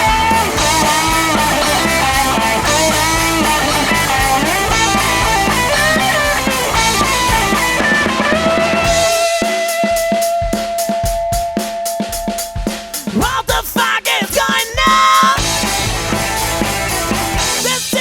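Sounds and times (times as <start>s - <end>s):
bass: 0.0s - 9.5s, 15.4s - 18.0s
electric guitar melody: 0.0s - 12.2s, 15.4s - 17.6s
drums: 0.0s - 18.0s.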